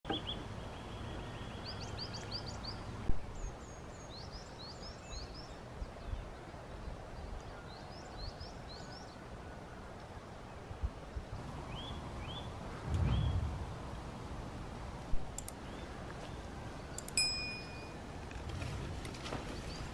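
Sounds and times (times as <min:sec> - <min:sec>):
small birds chirping: 0:00.1 - 0:13.6, 0:15.4 - 0:18.0
low outdoor rumble: 0:09.1 - 0:19.9
sharp click: 0:15.3 - 0:15.6, 0:17.0 - 0:17.3.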